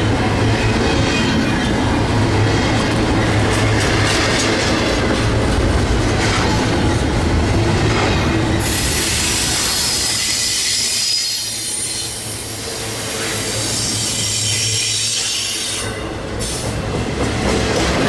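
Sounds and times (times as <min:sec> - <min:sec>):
freight train passing: 0:00.0 - 0:18.0
wheels clacking over rail joints: 0:00.2 - 0:09.0
high wheel squeal: 0:08.5 - 0:16.6.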